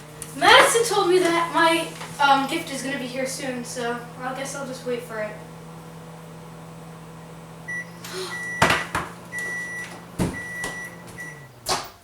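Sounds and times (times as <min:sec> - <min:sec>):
microwave oven humming: 0:00.0 - 0:12.0
microwave beeps: 0:07.2 - 0:11.6.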